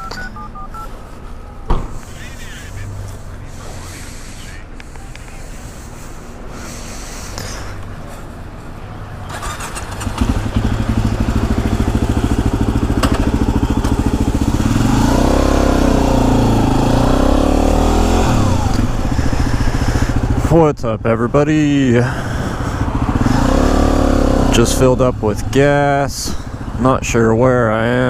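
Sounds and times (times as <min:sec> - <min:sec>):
motorcycle engine running: 0:09.3 - 0:20.6, 0:21.4 - 0:28.0.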